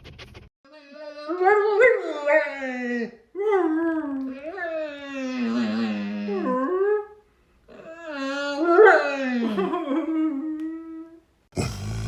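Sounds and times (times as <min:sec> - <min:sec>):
dog howling: 0:00.9 - 0:07.1.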